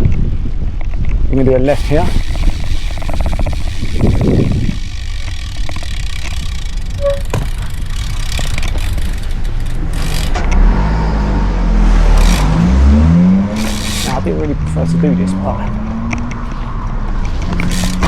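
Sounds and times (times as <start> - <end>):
wind rumble on microphone: 0.0 - 9.2
traffic: 0.0 - 18.0
motor vehicle engine close by: 1.7 - 18.0.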